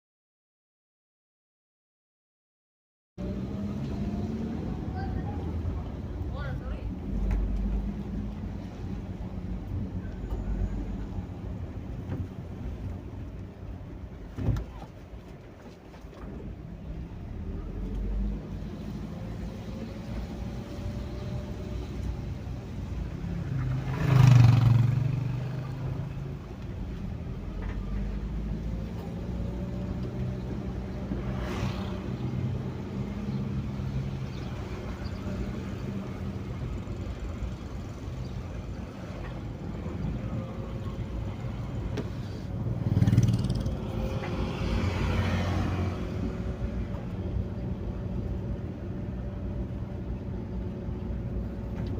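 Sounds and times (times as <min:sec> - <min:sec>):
vehicles passing on wet road: 0:03.2 - 0:14.0, 0:16.6 - 0:51.9
engine hum: 0:03.2 - 0:51.9.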